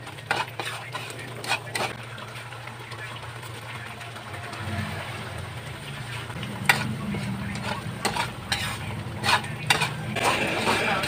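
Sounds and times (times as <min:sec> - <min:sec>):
spatula scraping a pan: 0:00.0 - 0:02.0, 0:06.4 - 0:11.0
food sizzling in a wok: 0:00.0 - 0:02.4, 0:04.5 - 0:11.0.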